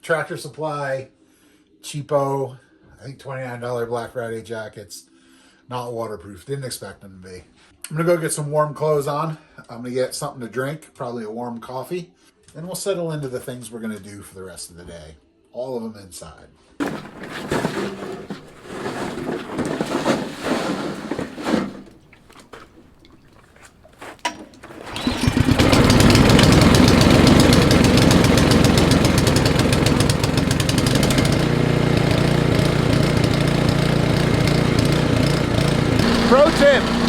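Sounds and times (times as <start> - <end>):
snowblower engine running: 16.8 - 21.9, 24.6 - 37.0
handling clatter: 16.8 - 31.0.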